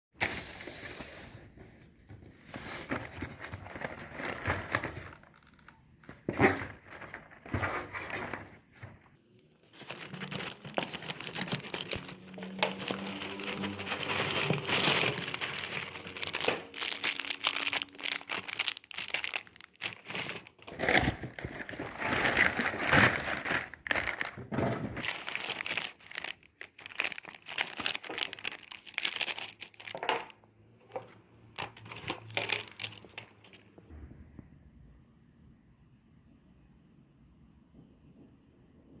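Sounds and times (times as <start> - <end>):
plastic wrapper crinkling: 3.2 - 8.4, 9.6 - 30.4, 31.6 - 33.7.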